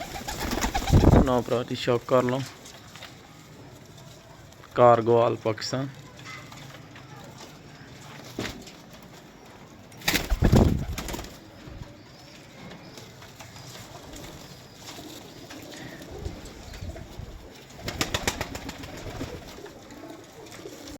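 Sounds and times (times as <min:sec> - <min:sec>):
loud rustling bursts: 0:00.0 - 0:01.5, 0:10.0 - 0:11.6, 0:13.2 - 0:19.8
pigeons cooing: 0:00.0 - 0:01.5, 0:13.6 - 0:20.9.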